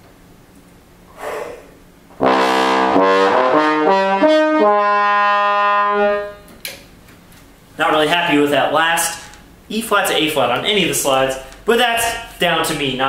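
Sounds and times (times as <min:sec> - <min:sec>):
bass trombone playing: 0:02.2 - 0:06.4.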